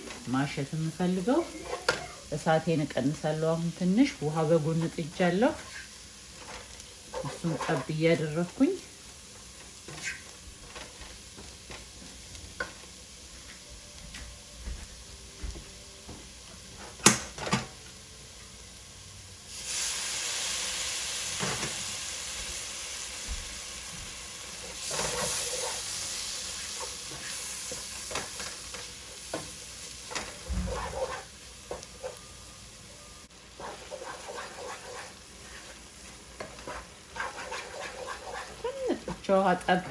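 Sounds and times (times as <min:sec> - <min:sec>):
loud sizzle of water on paste: 0:00.0 - 0:13.6, 0:16.1 - 0:39.8
wooden spatula scraping a pot: 0:05.6 - 0:08.0, 0:24.8 - 0:25.9, 0:30.1 - 0:32.2, 0:33.6 - 0:35.8, 0:36.4 - 0:39.2.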